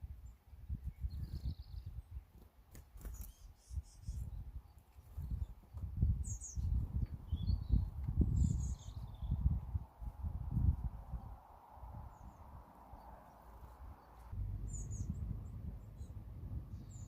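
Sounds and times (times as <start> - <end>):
high bird chirps: 12.1 - 17.0
low rumble: 14.3 - 17.0.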